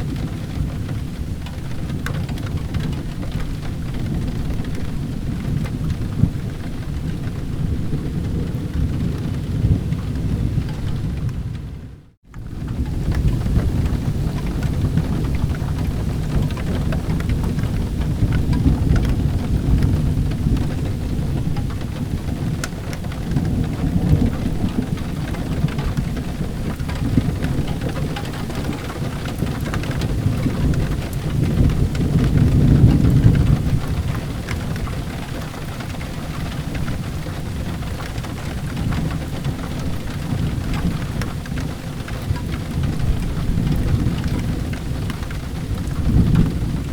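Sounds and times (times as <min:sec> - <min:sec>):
rolling thunder: 0:00.0 - 0:46.9
steady rain: 0:00.0 - 0:46.9.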